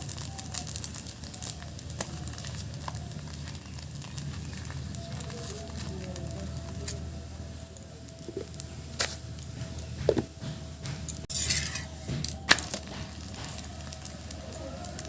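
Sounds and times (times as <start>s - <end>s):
taps and knocks on hot griddle: 8.3s - 14.1s.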